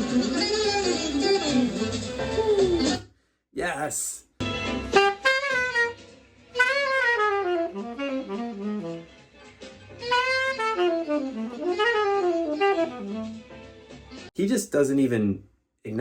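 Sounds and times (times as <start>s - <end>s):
saxophone playing fast bebop: 0.0s - 3.0s, 4.8s - 9.2s, 10.0s - 13.5s.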